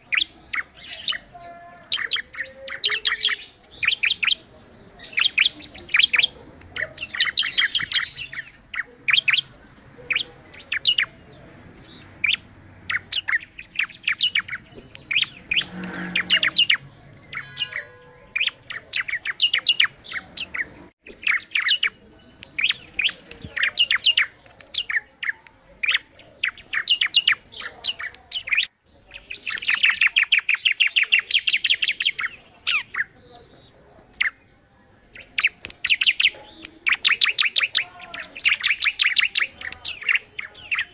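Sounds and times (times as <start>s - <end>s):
fast rattling bird trills: 0.0s - 11.3s, 11.9s - 22.0s, 35.2s - 40.9s
bird chirping: 0.0s - 40.9s.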